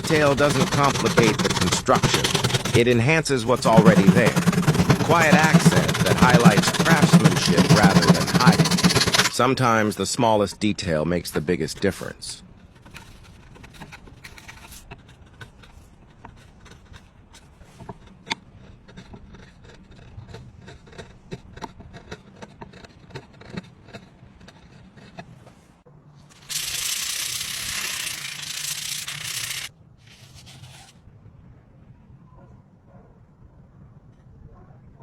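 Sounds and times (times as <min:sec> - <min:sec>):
rubbing and scraping: 0:00.0 - 0:31.0.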